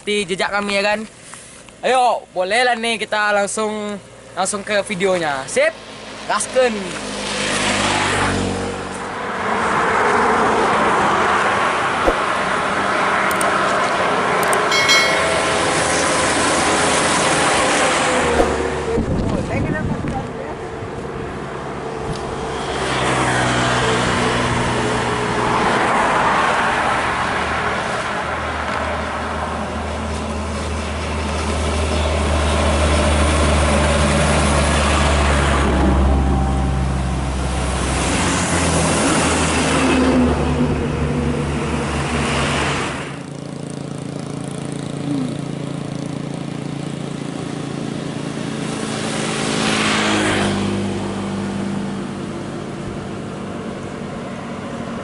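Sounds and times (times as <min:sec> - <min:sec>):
hum of engines: 0:00.0 - 0:14.8, 0:15.9 - 0:55.0
trucks and buses passing: 0:05.8 - 0:14.8, 0:20.5 - 0:55.0.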